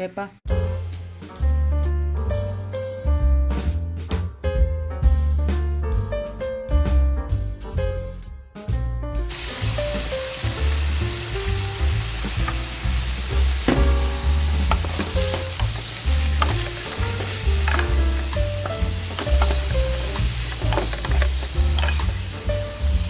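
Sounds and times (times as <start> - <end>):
background music with bass line: 0.5 - 23.0
food sizzling in a pan: 9.3 - 23.0
utensil clicking against pan: 13.6 - 23.0.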